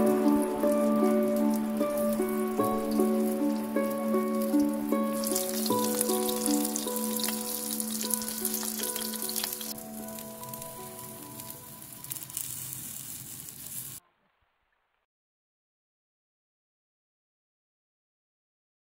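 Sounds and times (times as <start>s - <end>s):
chicken sizzling in frying pan: 0.0s - 14.0s.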